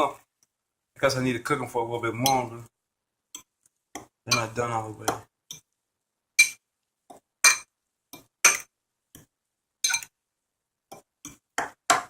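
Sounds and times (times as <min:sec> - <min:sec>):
metal fork clinking against bowl: 0:04.3 - 0:04.6, 0:09.8 - 0:10.1.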